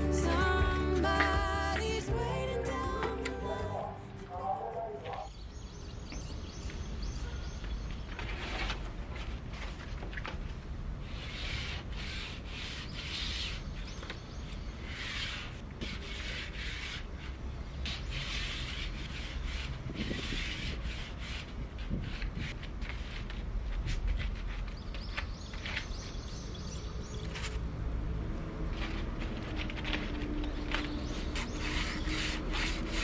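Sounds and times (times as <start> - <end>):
rubbing on wooden trim: 11.0 - 13.8, 14.8 - 25.0, 28.7 - 33.0.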